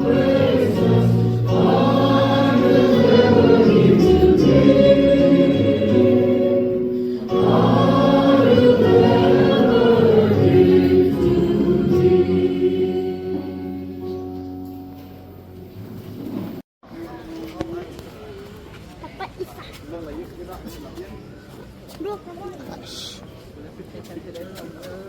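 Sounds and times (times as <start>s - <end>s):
choir singing a hymn: 0.0s - 14.6s.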